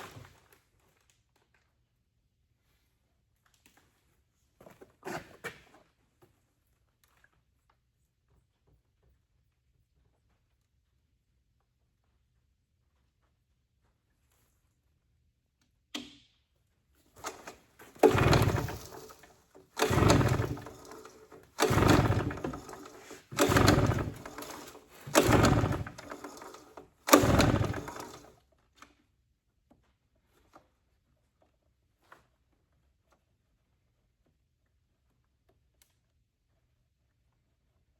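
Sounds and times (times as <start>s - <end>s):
leaf blower pull-start cranking: 17.2s - 28.3s.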